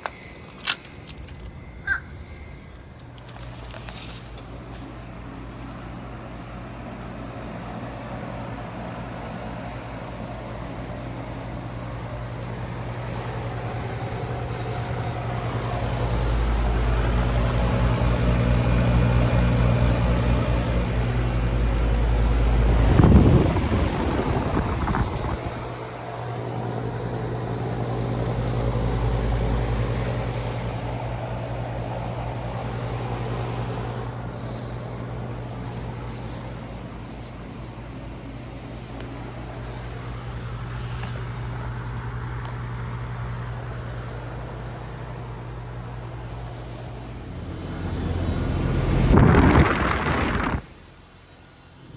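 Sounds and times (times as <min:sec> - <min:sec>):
fan noise: 0:00.0 - 0:51.9
heat pump compressor hum: 0:00.0 - 0:51.9
low rumble: 0:46.0 - 0:50.9.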